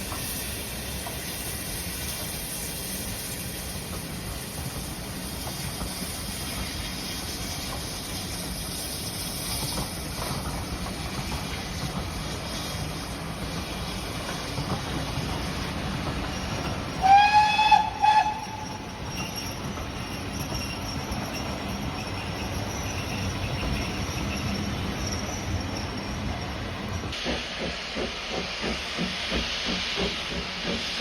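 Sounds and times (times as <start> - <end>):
rumble of moving train: 0.0 - 31.0
steam locomotive whistle toots: 16.9 - 19.4.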